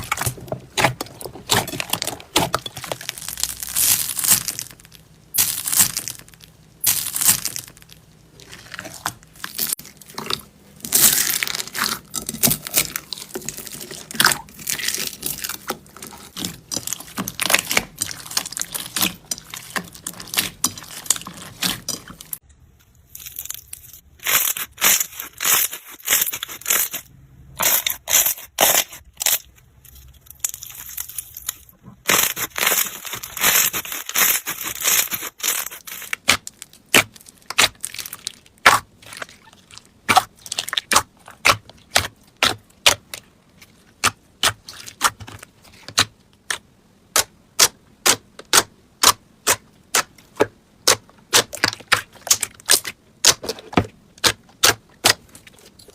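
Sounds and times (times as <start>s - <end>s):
slime squeezed by hand crackling: 30.5s - 43.0s.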